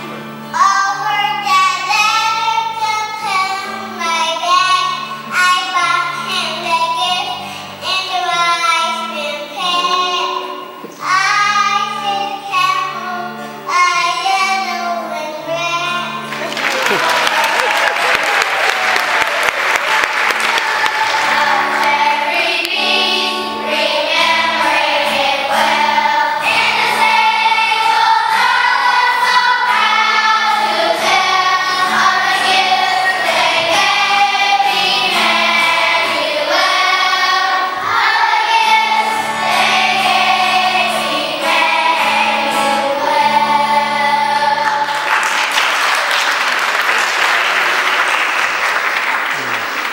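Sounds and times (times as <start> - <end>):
children's choir singing: 0.0 - 48.8
applause: 16.2 - 22.0, 44.8 - 49.9
instrumental accompaniment: 19.0 - 45.4.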